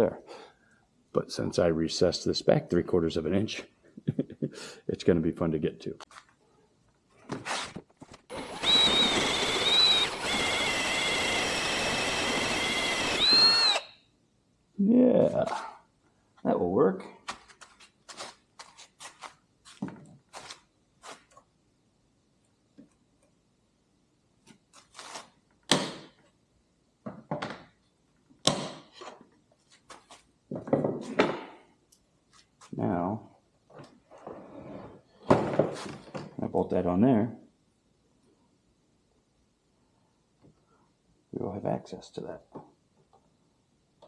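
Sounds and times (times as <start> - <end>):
cordless drill whining: 8.3 - 14.0
tools and parts clunking: 30.5 - 31.6.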